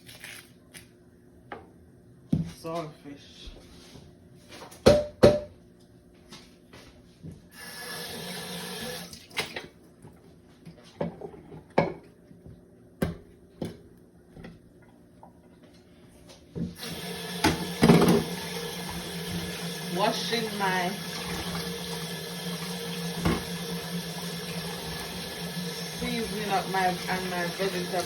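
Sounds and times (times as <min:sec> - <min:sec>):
tap running into a sink: 0:16.8 - 0:19.7, 0:22.5 - 0:26.4.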